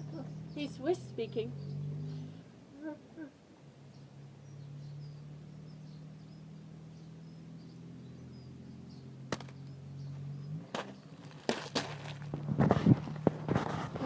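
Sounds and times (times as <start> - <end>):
faint bird chirps: 0.0 - 11.2.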